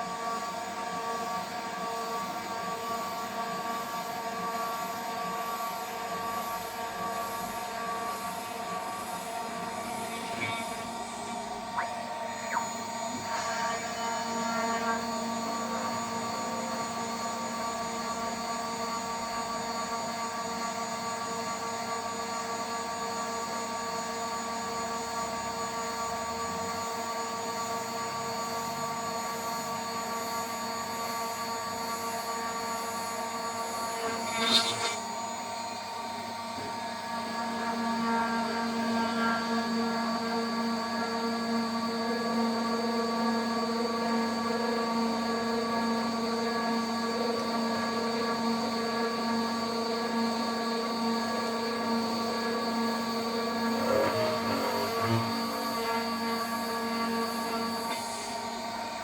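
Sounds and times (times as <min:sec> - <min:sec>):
cnc spindle whining: 0:00.0 - 0:59.0
cutter screech: 0:09.7 - 0:15.2, 0:33.8 - 0:35.1, 0:53.5 - 0:57.6
end mill cutting: 0:53.5 - 0:56.6.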